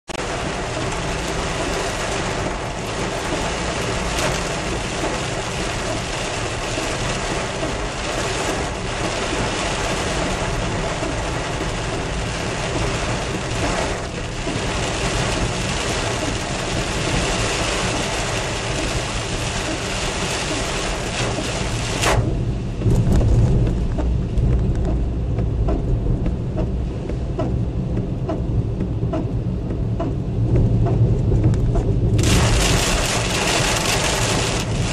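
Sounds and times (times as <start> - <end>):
heavy rain with hail: 0.1 - 24.9, 32.0 - 34.9
deep low rumble: 0.1 - 34.9.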